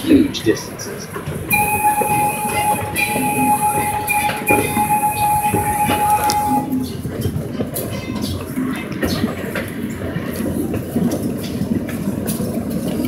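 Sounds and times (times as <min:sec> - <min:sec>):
miniature train running on track: 0:00.0 - 0:13.0
rail clicks: 0:00.0 - 0:13.0
steady high-pitched tone: 0:01.5 - 0:07.0.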